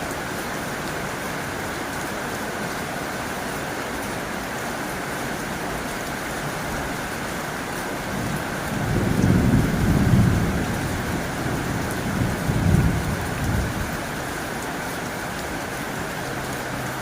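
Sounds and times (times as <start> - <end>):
heavy rain on a tin roof: 0.0 - 17.0
thunder rumbling: 8.1 - 14.1.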